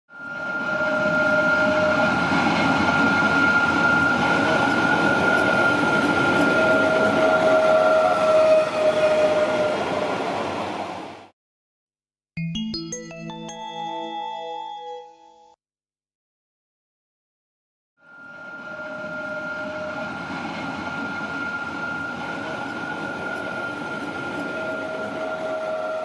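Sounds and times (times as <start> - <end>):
train wheels rumbling on rails: 0.4 - 11.2, 18.6 - 26.0
high thin tone: 12.4 - 15.6
low tone: 12.4 - 15.6.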